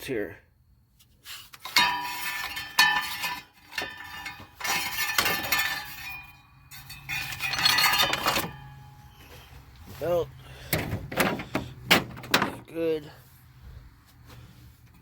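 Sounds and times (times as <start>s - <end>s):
metal hand tools clinking: 1.6s - 9.0s.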